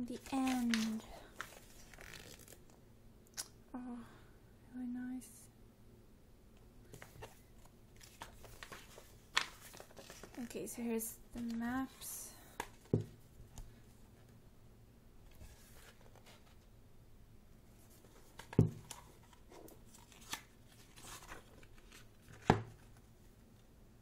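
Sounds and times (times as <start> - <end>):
paper pages turning: 0.2 - 2.7, 6.9 - 10.8, 15.3 - 16.6, 17.8 - 23.0.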